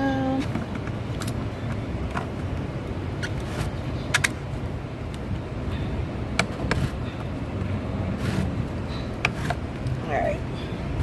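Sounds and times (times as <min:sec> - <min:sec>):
idling vehicles and traffic hum: 0:00.0 - 0:11.0
sharp clicks and knocks: 0:04.1 - 0:04.4.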